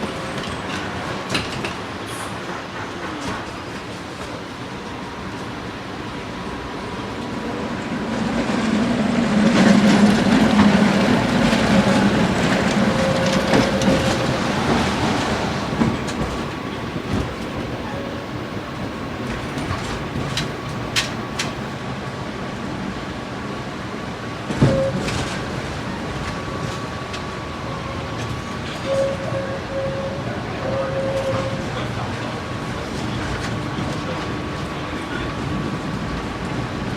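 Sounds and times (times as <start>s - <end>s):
tram rumbling past: 0.0s - 36.9s
wheels clicking over track: 9.4s - 21.8s.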